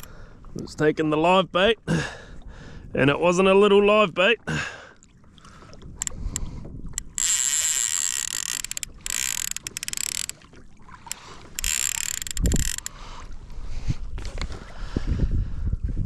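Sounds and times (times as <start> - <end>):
fishing reel drag screaming: 7.0 - 10.4, 11.1 - 12.9.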